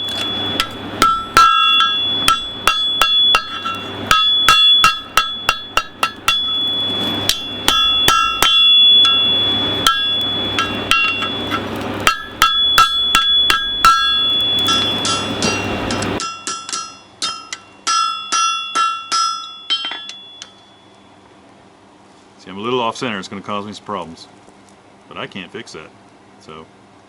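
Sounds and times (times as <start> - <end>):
hammer striking metal on anvil: 0.0 - 20.6
steady low hum: 0.0 - 27.0.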